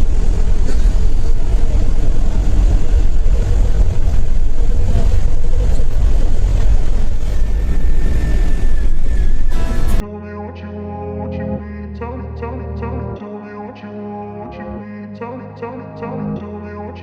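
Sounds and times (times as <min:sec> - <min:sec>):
vehicle road noise rumble: 0:00.0 - 0:10.0.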